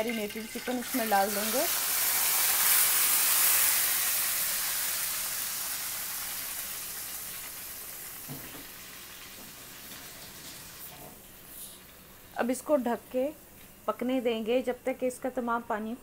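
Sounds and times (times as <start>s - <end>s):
chicken sizzling in hot oil: 0.0s - 11.9s.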